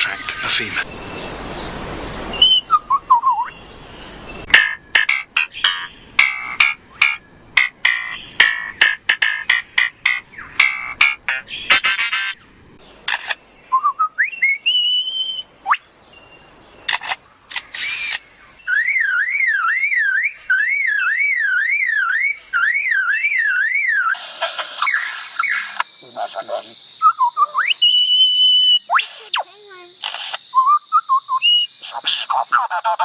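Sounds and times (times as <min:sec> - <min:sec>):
bird rising whistles: 0:02.3 - 0:03.6, 0:13.7 - 0:15.8, 0:17.8 - 0:24.2, 0:27.0 - 0:29.4, 0:30.5 - 0:31.7
bird harsh noisy call: 0:04.4 - 0:13.4, 0:16.9 - 0:30.4, 0:31.5 - 0:33.0
bird sharp clicks: 0:04.5 - 0:12.3, 0:16.9 - 0:18.3
bird siren-like warbling: 0:17.9 - 0:29.4.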